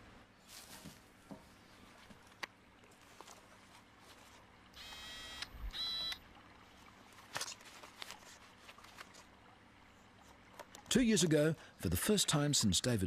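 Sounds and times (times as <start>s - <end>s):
short electronic beeps: 4.8s - 6.2s.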